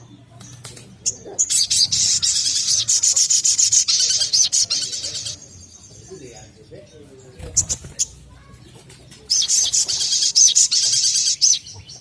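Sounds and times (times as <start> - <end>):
bird singing high trill: 1.1 - 6.0, 9.3 - 12.0.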